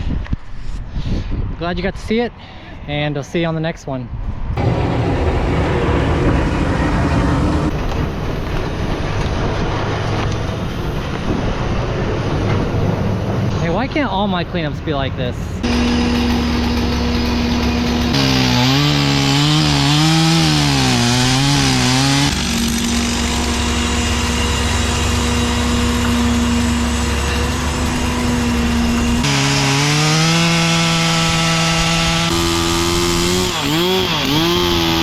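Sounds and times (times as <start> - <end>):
chainsaw cutting wood: 15.6 - 35.0.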